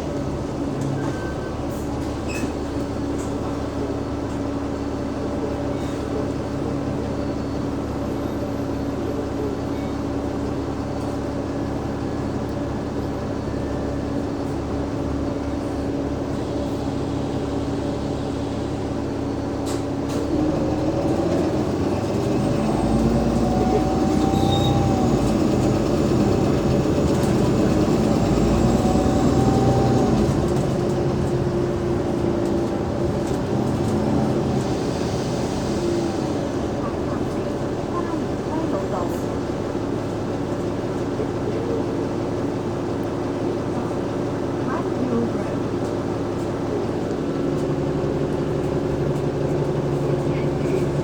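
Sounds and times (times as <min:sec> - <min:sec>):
bus diesel engine: 0:00.0 - 0:51.0.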